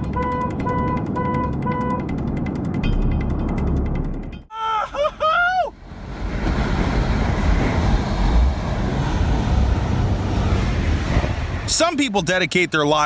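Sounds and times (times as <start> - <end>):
wind buffeting microphone: 5.8 - 11.7.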